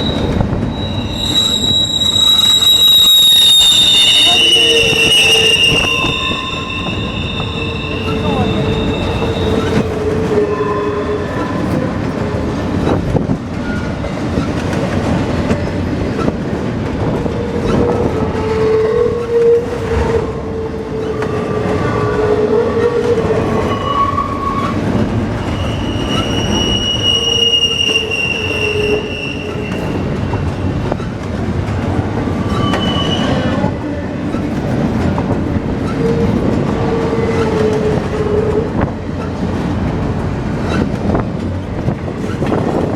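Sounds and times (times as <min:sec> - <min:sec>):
wheel squeals: 0:00.0 - 0:11.8, 0:17.5 - 0:19.9, 0:21.0 - 0:31.4, 0:32.3 - 0:39.4, 0:40.6 - 0:41.2, 0:41.8 - 0:42.9
train wheels rumbling on rail: 0:00.0 - 0:42.9.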